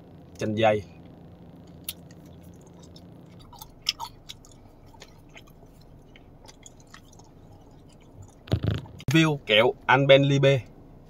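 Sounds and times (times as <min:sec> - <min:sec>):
person chewing gummy candy: 0:01.7 - 0:09.0.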